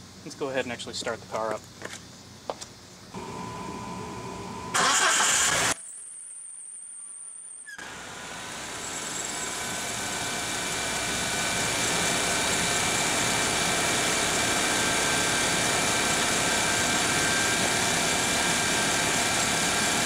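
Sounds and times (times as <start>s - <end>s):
car engine running with loud squeal: 7.2s - 20.0s.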